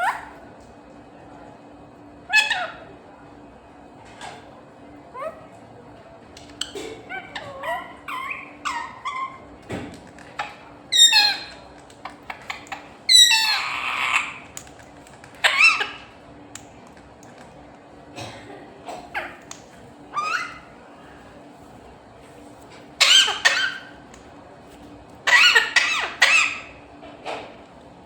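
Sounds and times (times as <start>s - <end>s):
parrot squawking: 2.3s - 2.9s, 7.0s - 9.4s, 10.4s - 11.6s, 12.3s - 14.5s, 15.4s - 16.1s, 20.1s - 20.8s, 23.0s - 24.0s, 25.2s - 26.8s.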